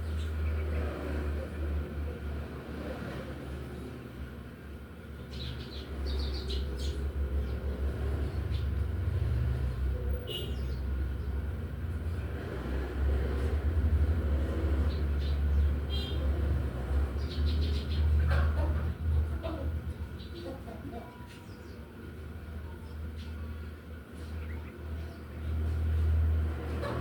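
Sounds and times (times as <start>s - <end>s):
sparrow chirping: 5.2s - 8.8s, 17.2s - 18.2s.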